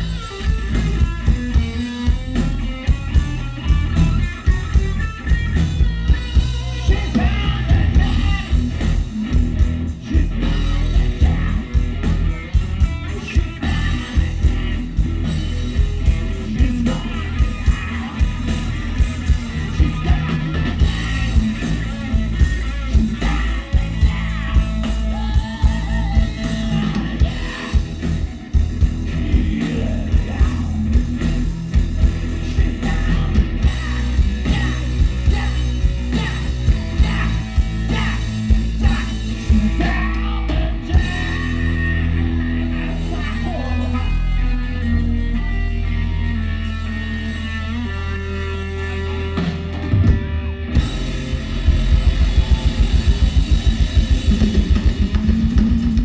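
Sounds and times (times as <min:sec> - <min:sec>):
drum kit beat: 0:00.0 - 0:42.3, 0:49.4 - 0:56.0
bass: 0:00.0 - 0:56.0
electric guitar: 0:00.0 - 0:56.0
person singing: 0:06.2 - 0:08.8, 0:22.4 - 0:28.3, 0:32.3 - 0:45.4.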